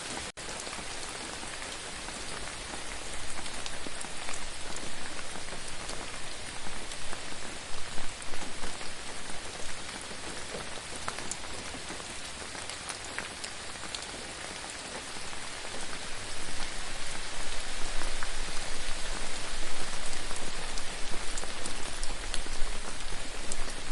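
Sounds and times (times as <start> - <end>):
gentle rain falling: 0.0 - 23.9.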